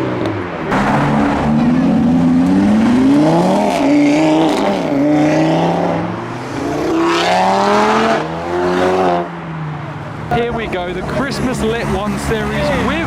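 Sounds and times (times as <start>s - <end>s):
car engine accelerating: 0.3s - 13.0s.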